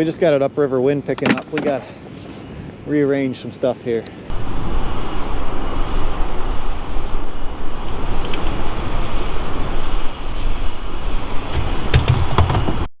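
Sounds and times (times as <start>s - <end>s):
wind buffeting microphone: 4.3s - 12.9s.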